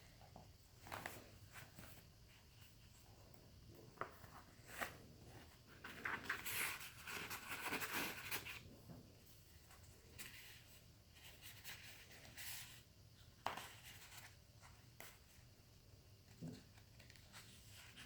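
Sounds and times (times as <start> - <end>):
paper pages rustling: 4.0 - 8.6.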